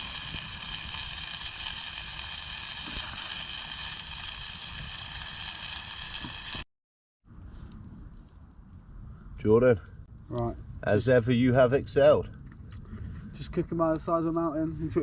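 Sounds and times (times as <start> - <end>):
steak sizzling in a pan: 0.0 - 6.6.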